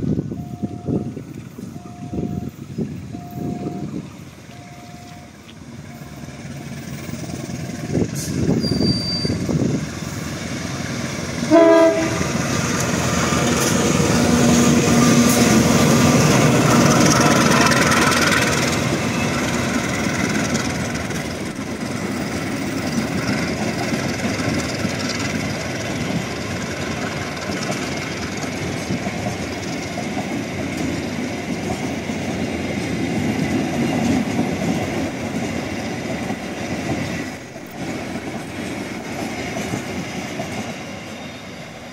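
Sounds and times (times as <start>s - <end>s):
train cars rumbling and clattering: 0.0s - 41.9s
train horn blast: 11.5s - 12.4s.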